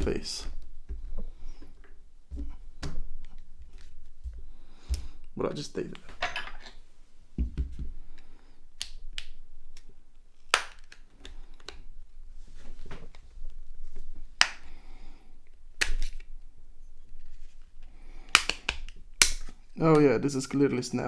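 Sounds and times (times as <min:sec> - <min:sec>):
plastic clicks and snaps: 0:18.3 - 0:20.1.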